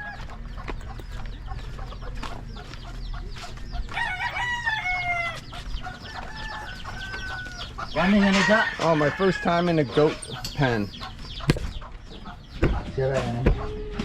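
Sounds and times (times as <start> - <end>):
rooster crowing: 0.0 - 0.4, 3.9 - 10.0
chickens clucking: 0.0 - 14.0.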